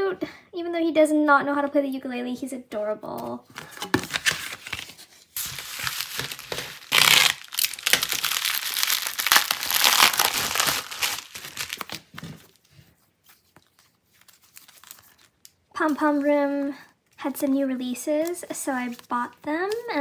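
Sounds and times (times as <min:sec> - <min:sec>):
plastic mailer crinkling: 0:03.6 - 0:12.6.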